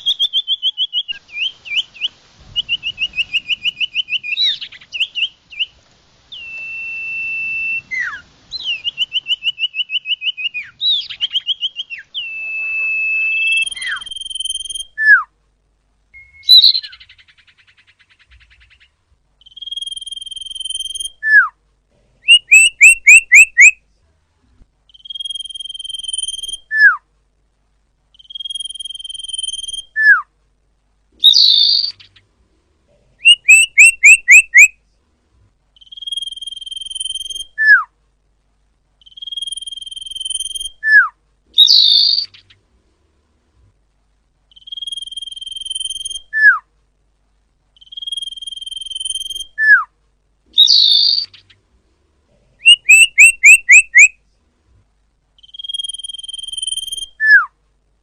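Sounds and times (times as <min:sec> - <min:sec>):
bird high trill: 0:00.0 - 0:05.7, 0:06.3 - 0:15.2, 0:16.2 - 0:21.5, 0:22.3 - 0:23.8, 0:24.9 - 0:27.0, 0:28.2 - 0:30.2, 0:33.2 - 0:34.7, 0:35.8 - 0:37.8, 0:39.0 - 0:42.6, 0:44.5 - 0:46.6, 0:47.8 - 0:49.9, 0:50.6 - 0:51.5, 0:52.6 - 0:54.1, 0:55.4 - 0:57.5
harsh bird call: 0:00.0 - 0:15.2, 0:22.2 - 0:23.8, 0:33.2 - 0:34.7, 0:52.6 - 0:54.1
downward-sliding bird whistle: 0:00.0 - 0:15.3, 0:16.2 - 0:21.5, 0:22.3 - 0:23.8, 0:24.9 - 0:27.0, 0:28.2 - 0:30.3, 0:33.2 - 0:34.7, 0:35.8 - 0:37.9, 0:39.0 - 0:42.5, 0:44.5 - 0:46.6, 0:47.8 - 0:49.9, 0:50.6 - 0:51.5, 0:52.6 - 0:54.1, 0:55.4 - 0:57.5
run of sharp bird notes: 0:22.2 - 0:23.8, 0:33.2 - 0:34.7, 0:52.6 - 0:54.2.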